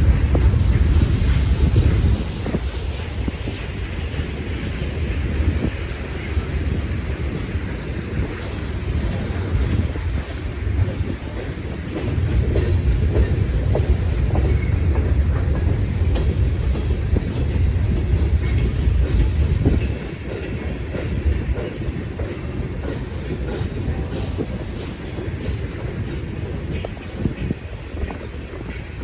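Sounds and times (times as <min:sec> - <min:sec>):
train cars rumbling past: 0:00.0 - 0:29.0
wheels clicking over rail joints: 0:00.0 - 0:29.0.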